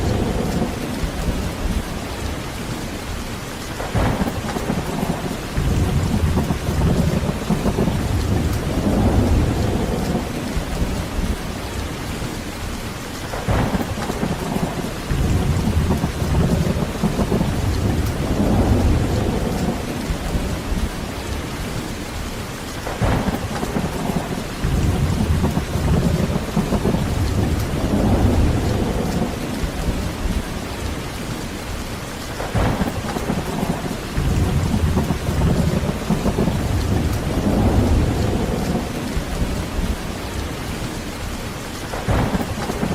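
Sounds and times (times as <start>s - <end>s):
low rolling thunder: 0.0s - 12.7s, 13.3s - 42.9s
heavy rain: 0.0s - 42.9s.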